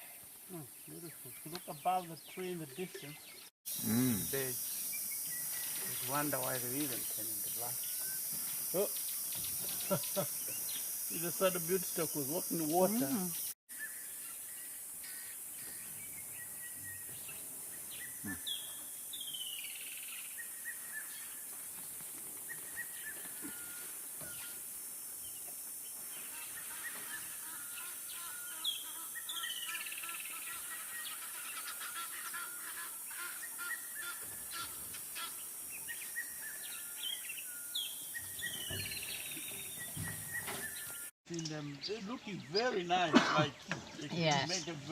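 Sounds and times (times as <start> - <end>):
steady high hiss: 3.7 - 16.3
faint bird calls: 17.9 - 21.4.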